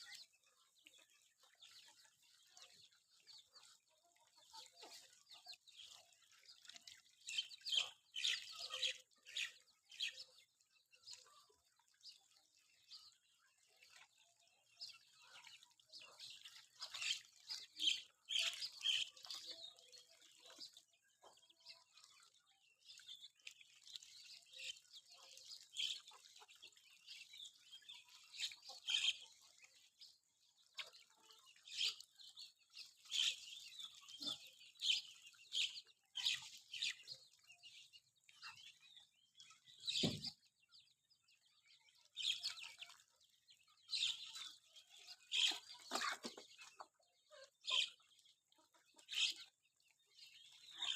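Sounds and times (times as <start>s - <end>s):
chickens chirping: 44.2s - 47.8s.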